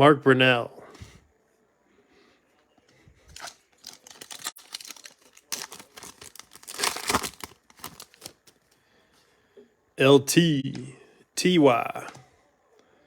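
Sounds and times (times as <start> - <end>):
foil wrapper tearing and crinkling: 3.3 - 8.7.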